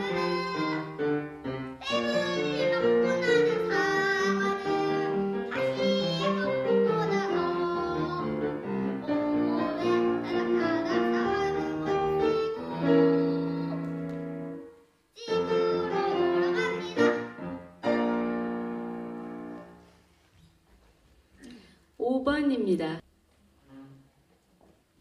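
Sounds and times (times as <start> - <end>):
child singing: 0.0 - 13.9, 15.2 - 17.5
instrumental accompaniment: 0.0 - 21.0.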